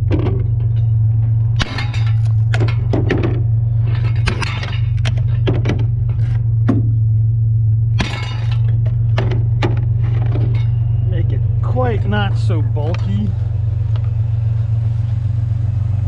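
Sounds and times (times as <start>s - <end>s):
scrap metal clanking and rattling: 0.0s - 13.5s
low hum: 0.0s - 16.0s.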